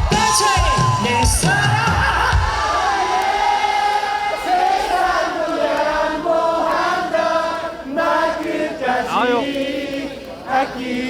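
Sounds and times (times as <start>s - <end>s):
band playing: 0.0s - 3.9s
audience singing in unison: 0.0s - 11.0s.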